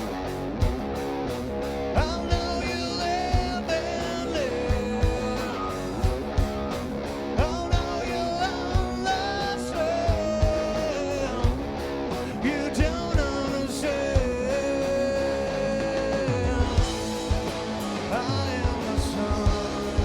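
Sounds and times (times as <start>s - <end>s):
live rock band playing: 0.0s - 20.0s
drum beat: 2.0s - 3.8s, 4.6s - 8.2s, 16.2s - 20.0s.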